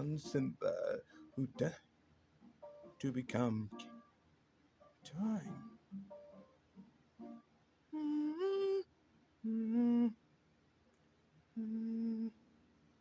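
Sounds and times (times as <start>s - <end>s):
person humming: 7.9s - 10.2s, 11.6s - 12.4s.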